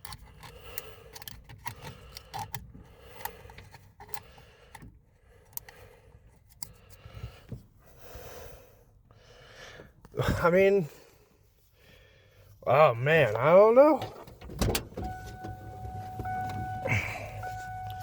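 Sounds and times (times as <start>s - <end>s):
faint steady hum: 14.5s - 18.0s.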